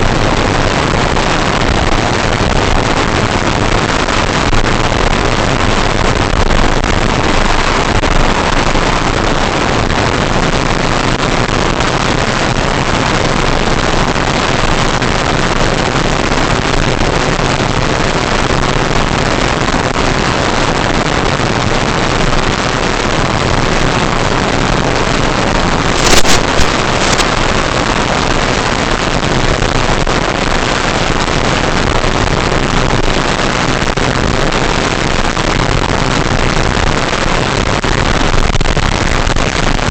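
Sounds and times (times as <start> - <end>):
propeller and wind rush: 0.0 - 39.9
sharp cracks: 25.6 - 29.2.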